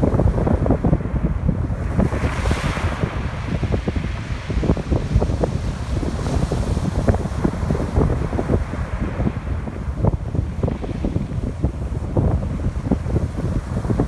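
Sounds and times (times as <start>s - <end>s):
ocean surf on a beach: 0.0s - 14.0s
strong wind buffeting microphone: 0.0s - 14.0s.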